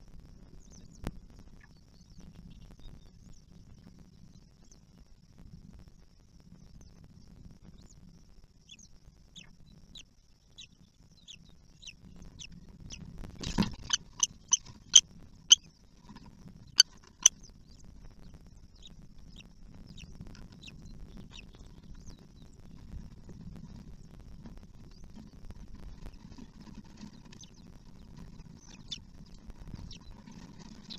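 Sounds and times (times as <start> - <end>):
bird chicks chirping: 10.6 - 15.0, 26.9 - 30.9
rustle: 12.2 - 30.9
loud sharp bird calls: 13.8 - 15.0.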